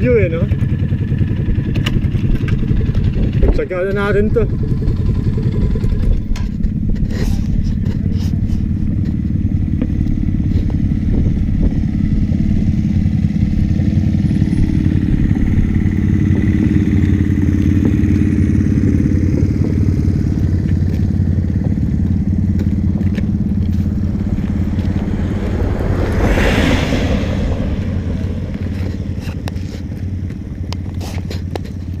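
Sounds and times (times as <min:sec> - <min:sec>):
motorcycle engine cruising: 0:00.0 - 0:32.0
wind rushing: 0:23.3 - 0:29.7.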